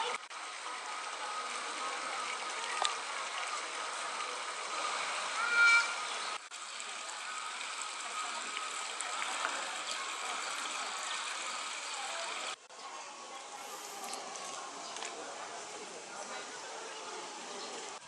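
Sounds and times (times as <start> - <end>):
faint voices: 0.0 - 18.0
loud high-pitched call: 5.4 - 6.1.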